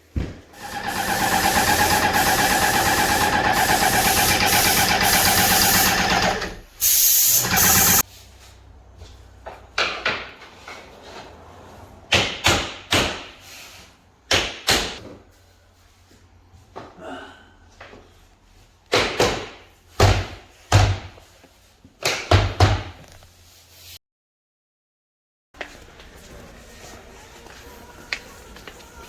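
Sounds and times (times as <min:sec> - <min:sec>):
small motor running: 0:07.4 - 0:08.0.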